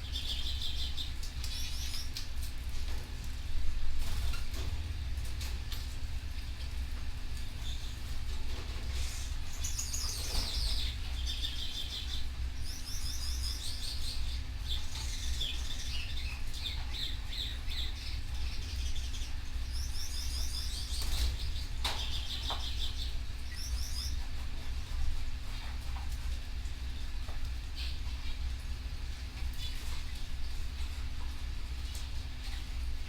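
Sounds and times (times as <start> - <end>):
canaries chirping and singing: 0.0 - 2.2, 8.5 - 24.4
steady low hum: 0.0 - 33.0.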